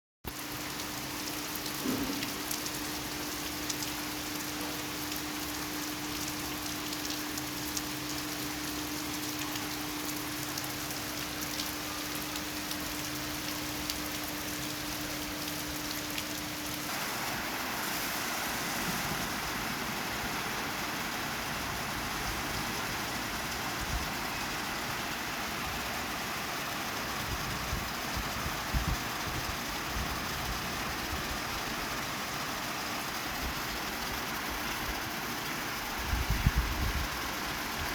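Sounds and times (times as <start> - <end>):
raindrop ticks: 0.3 - 16.8
rain falling: 0.3 - 37.9.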